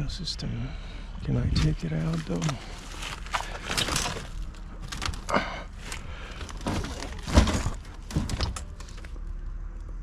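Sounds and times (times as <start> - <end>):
debris knocking and crackling: 1.6 - 9.2.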